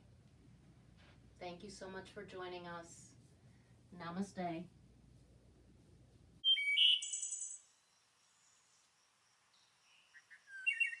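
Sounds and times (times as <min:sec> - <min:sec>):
bird trill: 0:06.4 - 0:08.1, 0:09.6 - 0:11.0
high bird chirps: 0:06.4 - 0:08.6, 0:09.6 - 0:11.0.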